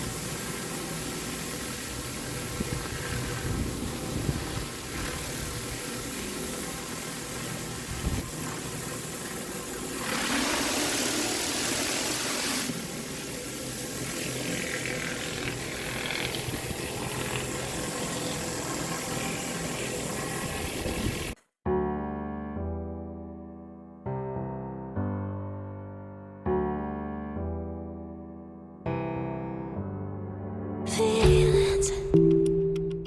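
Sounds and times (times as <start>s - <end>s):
pressure washer spraying concrete: 0.0s - 21.4s.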